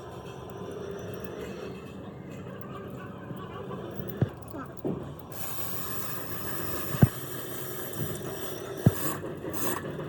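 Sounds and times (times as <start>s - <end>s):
mechanical running noise with hiss: 5.3s - 10.0s.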